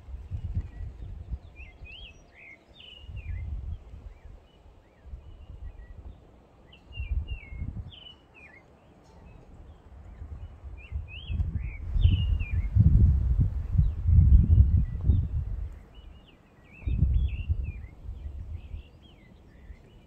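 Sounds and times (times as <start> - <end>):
birds chirping: 0.1 - 20.0
low microphone rumbling: 10.0 - 16.2, 16.8 - 19.0.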